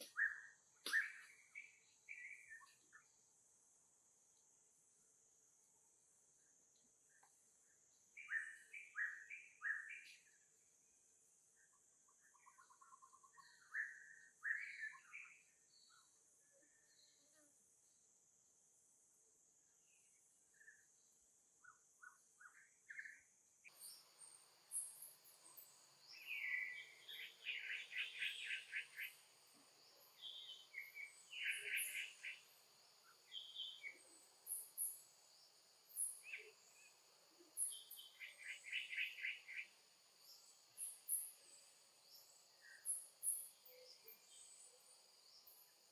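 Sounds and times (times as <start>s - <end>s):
birds chirping and trilling: 21.6s - 45.9s.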